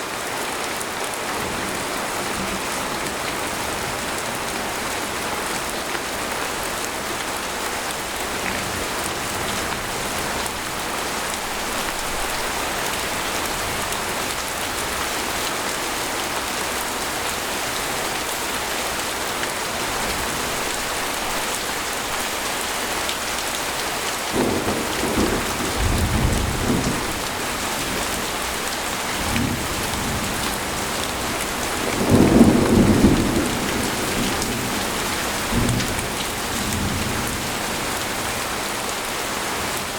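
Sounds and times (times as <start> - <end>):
rain falling on a tent: 0.0 - 39.9
thunder rumbling: 24.3 - 28.6, 29.2 - 38.3.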